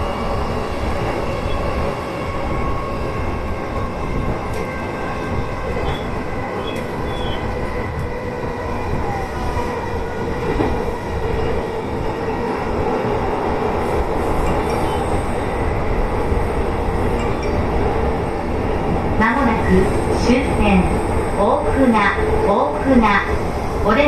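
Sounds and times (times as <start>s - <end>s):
train wheels rolling on rail: 0.0s - 24.0s.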